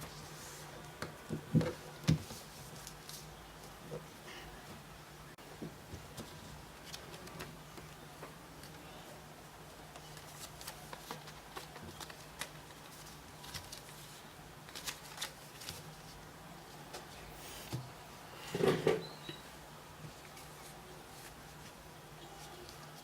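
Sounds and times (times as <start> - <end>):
paper being folded and creased: 9.9 - 16.2
paper rustle: 9.9 - 16.2.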